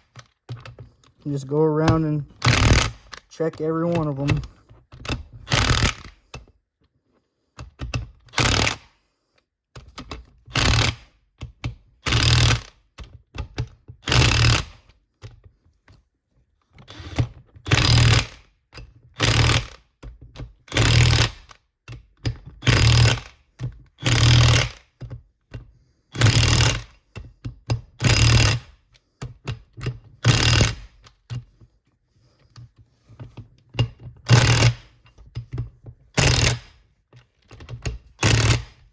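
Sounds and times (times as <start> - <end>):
impact wrench hammering: 1.8 - 3.2, 20.7 - 21.5, 22.6 - 23.3, 24.0 - 24.8, 26.2 - 26.9, 28.0 - 28.7, 30.2 - 31.0, 34.3 - 35.0, 36.2 - 36.8, 37.9 - 38.8.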